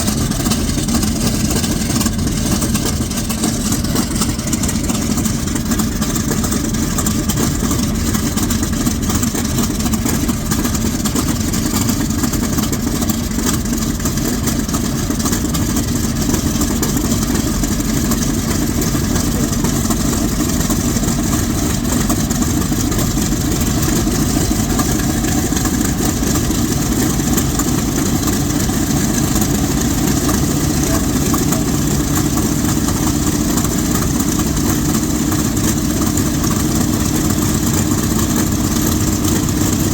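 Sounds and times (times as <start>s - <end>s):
radial aircraft engine running: 0.0s - 39.9s.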